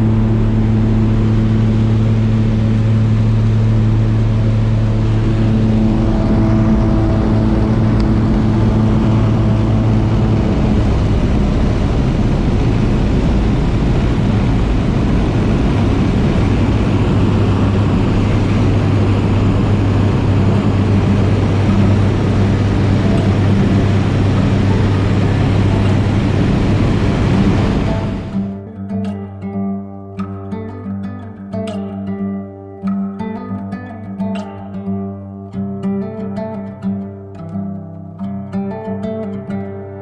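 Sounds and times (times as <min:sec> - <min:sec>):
float plane engine and propeller: 0:00.0 - 0:28.6
guitar music: 0:00.0 - 0:40.0.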